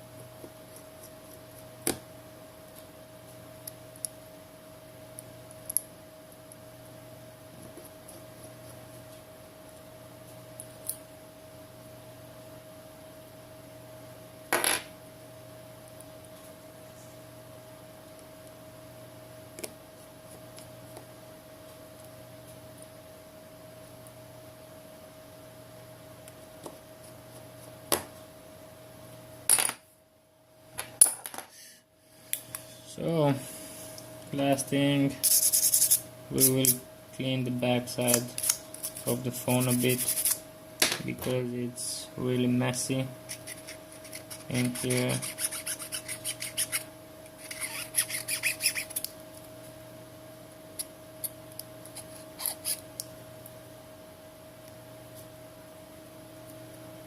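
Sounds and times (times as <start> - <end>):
scraping and rubbing on phone: 35.2 - 36.5, 38.4 - 40.4, 43.3 - 49.0, 51.9 - 52.8.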